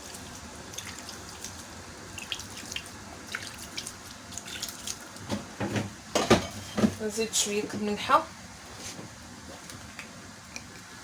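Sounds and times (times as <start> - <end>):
water dripping and splashing: 0.0 - 5.3.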